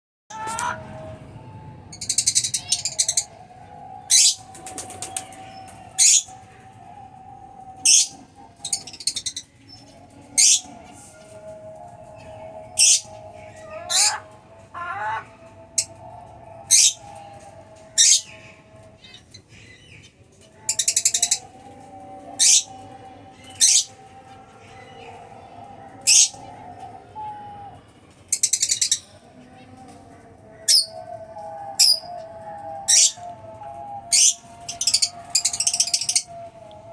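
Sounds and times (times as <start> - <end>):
bird chatter: 4.1 - 6.8.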